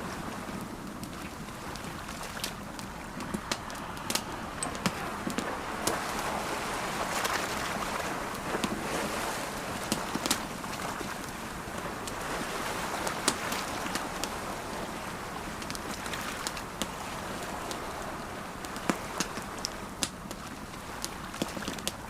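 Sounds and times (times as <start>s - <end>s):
campfire crackling: 0.0s - 22.0s
ocean waves: 0.0s - 22.0s
fire popping: 0.8s - 6.0s.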